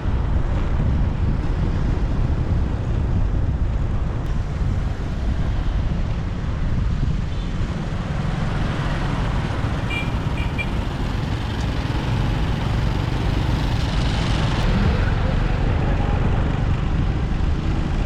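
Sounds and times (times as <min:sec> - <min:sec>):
wind on the microphone: 0:00.0 - 0:09.8
motorbike rumble: 0:00.0 - 0:18.0
surrounding traffic: 0:00.0 - 0:18.0.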